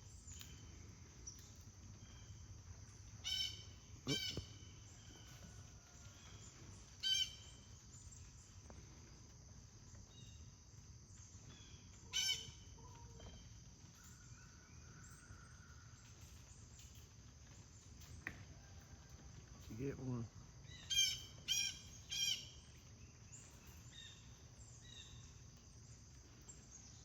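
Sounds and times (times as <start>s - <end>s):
harsh bird calls: 3.2s - 5.2s.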